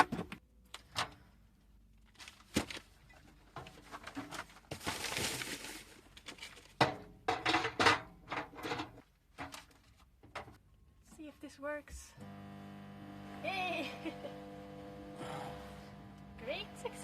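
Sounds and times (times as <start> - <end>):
packaging rustling: 2.0 - 6.8.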